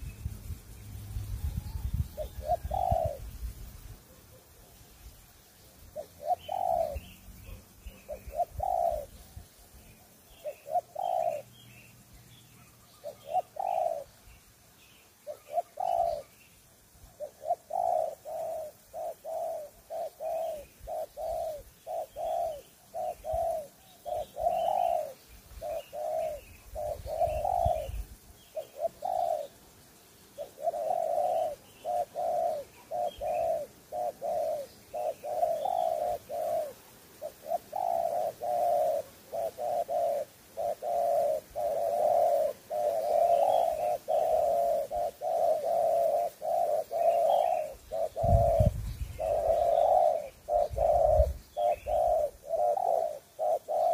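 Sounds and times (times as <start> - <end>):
small birds chirping: 0.0 - 53.9
dove cooing: 1.4 - 3.4, 5.8 - 11.8, 12.6 - 14.4, 15.2 - 16.4, 17.0 - 29.6, 30.3 - 53.9.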